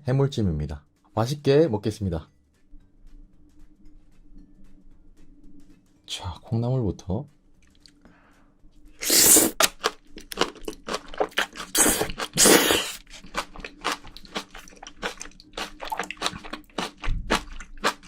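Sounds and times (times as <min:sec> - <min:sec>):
crunching and chewing food: 0:09.0 - 0:18.0.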